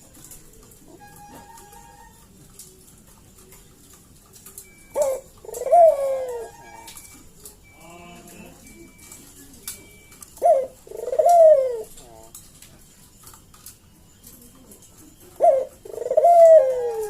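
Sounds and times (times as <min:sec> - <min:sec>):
dove cooing: 0:00.0 - 0:07.8, 0:08.5 - 0:17.0.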